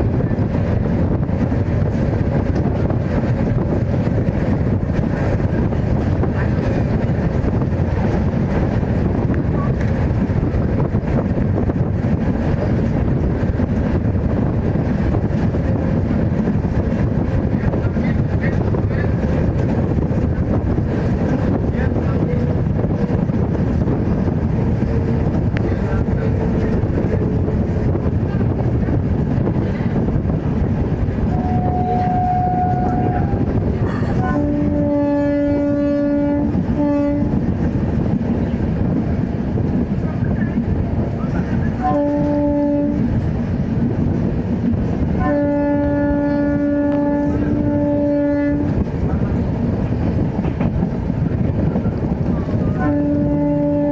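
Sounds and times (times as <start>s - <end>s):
train wheels rumbling on rails: 0.0s - 53.9s
faint train horn: 31.2s - 37.6s, 41.6s - 43.2s, 45.2s - 49.2s, 52.2s - 53.9s.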